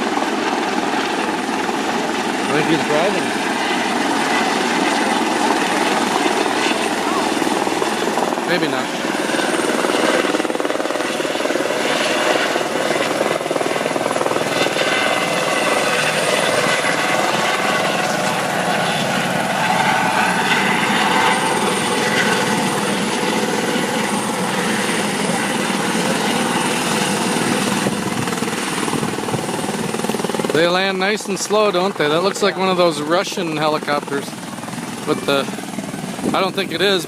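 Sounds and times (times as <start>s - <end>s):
helicopter landing: 0.0s - 37.0s.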